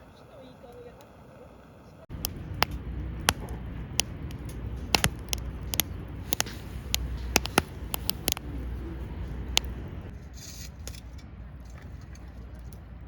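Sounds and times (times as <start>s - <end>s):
campfire crackling and popping: 2.1s - 10.1s.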